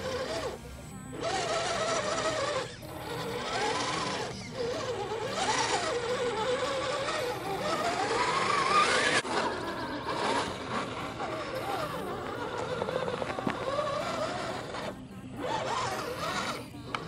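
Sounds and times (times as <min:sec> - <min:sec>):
toy car electric motor whining: 0:00.0 - 0:17.0.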